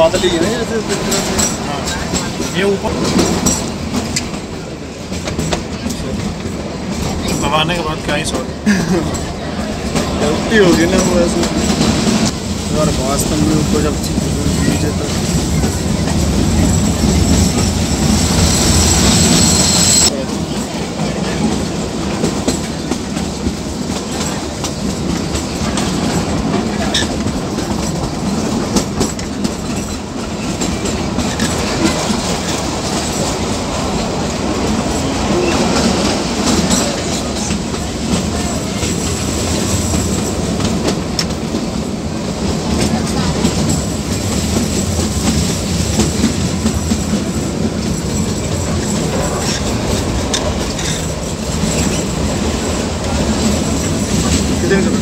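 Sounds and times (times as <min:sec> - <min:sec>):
train coaches rumbling: 0:00.0 - 0:55.0
wheels clattering over rail joints: 0:20.1 - 0:55.0.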